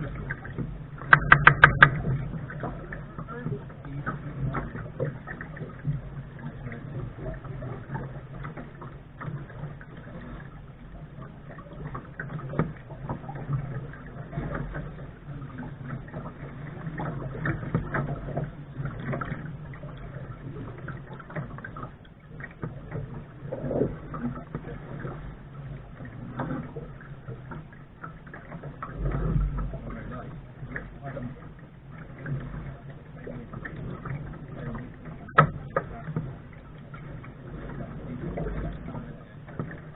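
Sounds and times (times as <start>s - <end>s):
water lapping against boat hull: 0.0s - 39.9s
small knocks and clicks: 0.3s - 2.8s, 35.3s - 36.2s.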